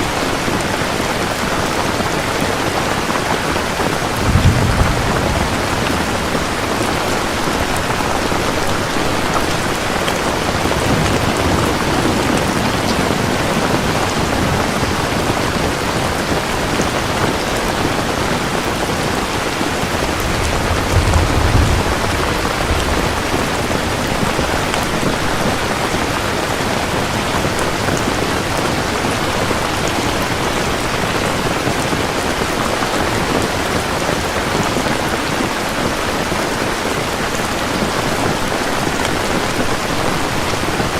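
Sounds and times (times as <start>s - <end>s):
heavy rain falling: 0.0s - 40.9s
distant thunder rumble: 3.4s - 30.9s.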